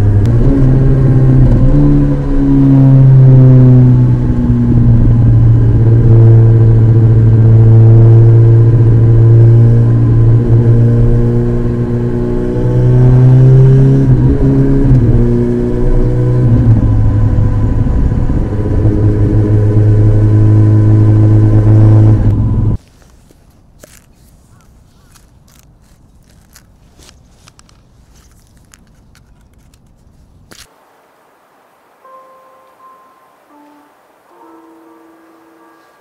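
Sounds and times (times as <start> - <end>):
motorcycle engine running: 0.0 - 22.8.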